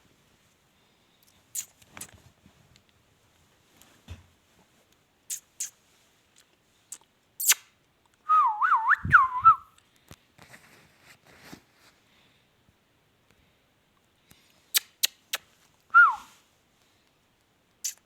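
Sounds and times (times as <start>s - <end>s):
parrot whistling: 16.0s - 16.3s.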